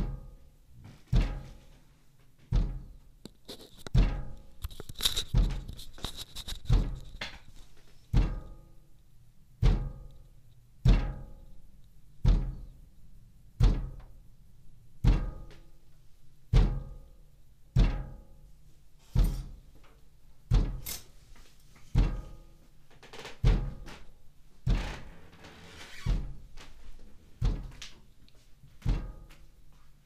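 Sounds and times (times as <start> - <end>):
heavy knocks on window glass: 1.1 - 1.7, 2.5 - 3.0, 6.7 - 7.1, 8.1 - 8.6, 9.6 - 10.1, 10.8 - 11.4, 12.2 - 12.8, 13.6 - 14.2, 15.0 - 15.7, 16.5 - 17.0, 17.8 - 18.2, 20.5 - 20.9, 21.9 - 22.4, 23.4 - 24.0, 24.6 - 25.2, 25.9 - 26.6, 27.3 - 27.8, 28.8 - 29.3.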